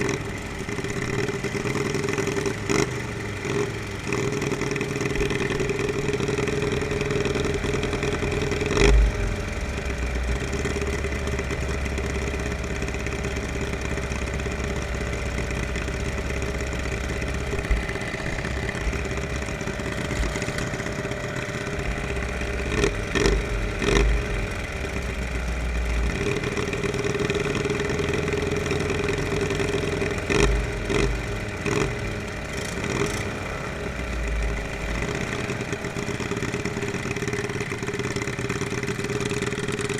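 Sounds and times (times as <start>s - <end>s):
lawnmower engines running: 0.0s - 39.9s.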